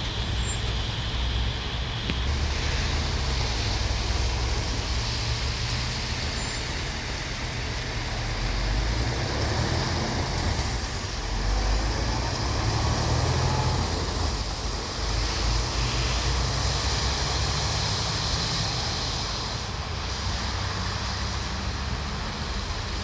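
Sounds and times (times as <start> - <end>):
heavy truck engine running: 0.0 - 23.0
road and traffic noise: 0.0 - 23.0.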